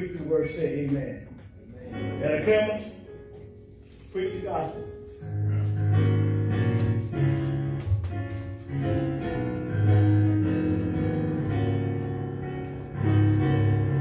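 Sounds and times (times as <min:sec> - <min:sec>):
instrumental church music: 0:00.0 - 0:14.0.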